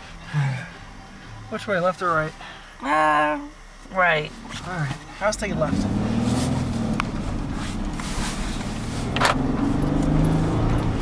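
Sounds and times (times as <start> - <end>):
car engine running: 3.6 - 11.0
tyre and road noise: 4.4 - 11.0.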